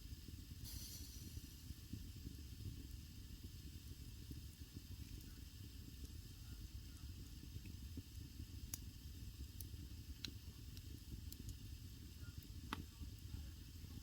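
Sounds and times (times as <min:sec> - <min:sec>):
burning wood crackling and popping: 0:00.0 - 0:14.0
fire rumbling with faint hiss: 0:00.0 - 0:14.0.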